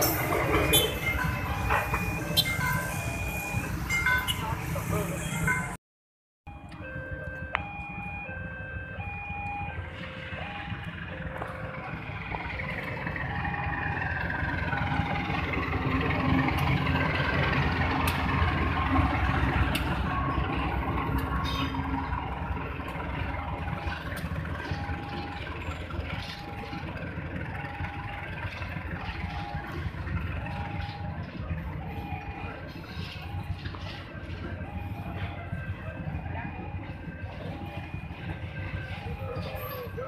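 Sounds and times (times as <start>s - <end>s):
two-pitch crossing warning tone: 0.0s - 4.5s
train engine and wheels rumbling: 0.0s - 5.8s, 6.5s - 40.0s
wheels clicking over rail joints: 13.9s - 31.7s.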